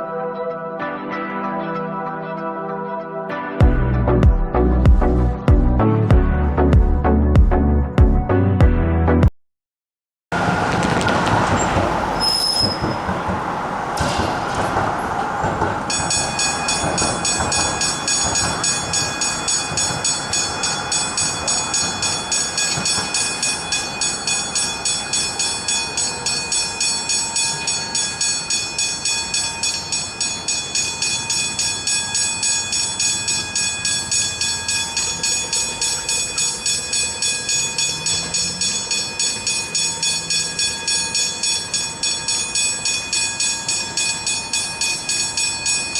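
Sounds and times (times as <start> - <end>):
road noise: 10.3 - 45.9
level crossing bell ringing: 15.2 - 45.9.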